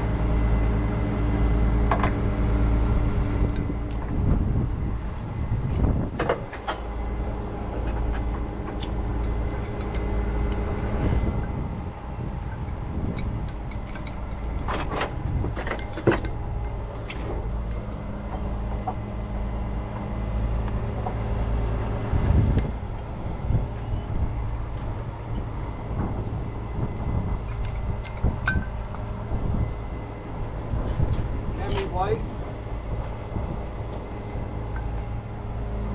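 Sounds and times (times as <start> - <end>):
truck diesel engine running: 0.0 - 35.9
metallic clanks and knocks: 12.6 - 19.1, 27.4 - 29.0.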